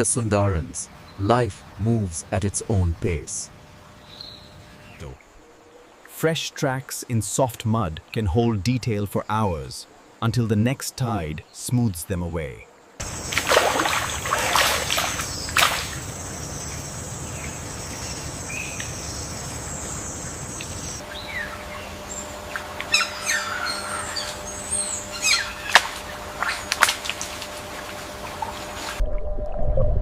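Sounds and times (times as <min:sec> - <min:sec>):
birds chirping: 0:00.0 - 0:29.0
sharp splashes or clicks: 0:13.0 - 0:16.2
water splashing: 0:13.0 - 0:21.0, 0:25.5 - 0:30.0
steady high whine: 0:15.0 - 0:30.0.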